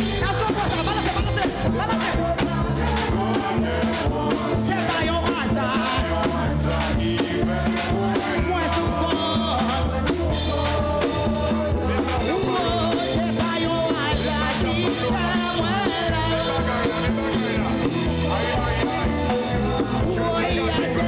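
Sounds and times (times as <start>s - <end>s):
gospel band playing: 0.0s - 21.0s
person singing: 0.0s - 21.0s.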